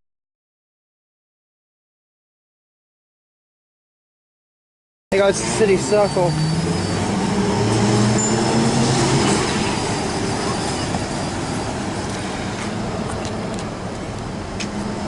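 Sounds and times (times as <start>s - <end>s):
tram motor hum and rolling: 5.2s - 15.0s.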